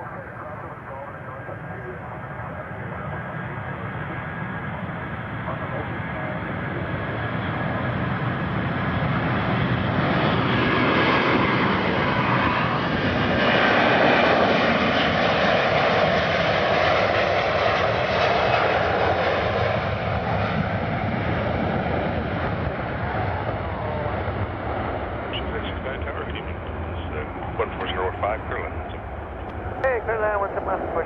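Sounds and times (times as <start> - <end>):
airliner engines passing: 0.0 - 31.0.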